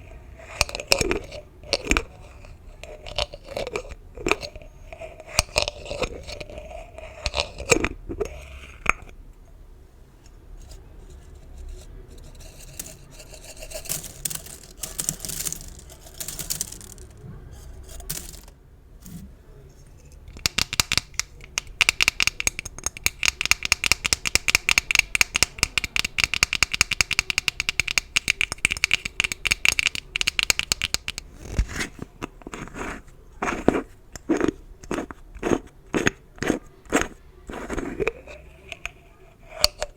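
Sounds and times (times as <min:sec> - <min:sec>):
ribbon scraping and crinkling: 0:10.6 - 0:19.3
fast crisp clicks: 0:20.3 - 0:31.2.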